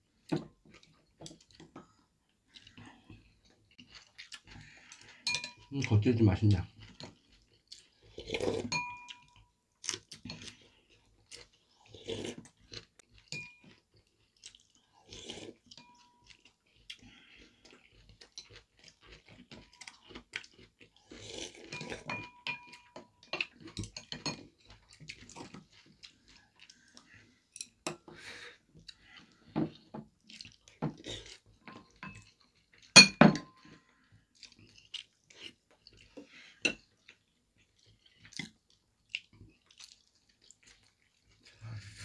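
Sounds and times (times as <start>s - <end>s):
chewing and crunching cabbage: 2.5s - 22.1s, 22.8s - 27.5s, 30.2s - 33.0s, 33.6s - 42.0s
utensils clinking on ceramic bowls: 4.9s - 6.0s, 8.6s - 9.4s, 13.3s - 13.8s, 21.7s - 24.5s, 31.6s - 32.3s, 32.9s - 33.6s.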